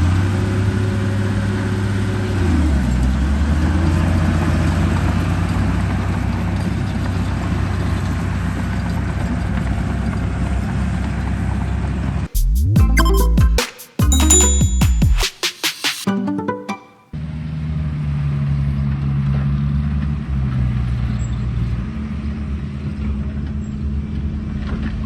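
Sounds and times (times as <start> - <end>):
vehicle engine droning: 0.0 - 12.2.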